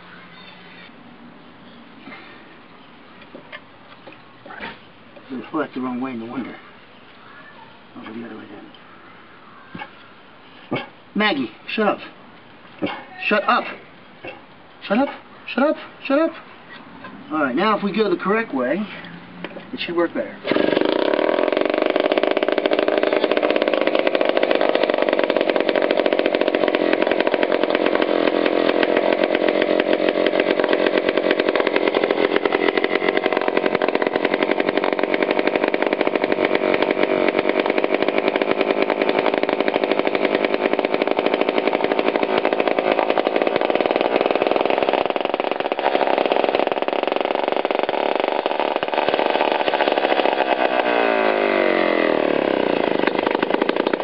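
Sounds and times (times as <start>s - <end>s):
two-stroke engine running: 20.4s - 54.0s.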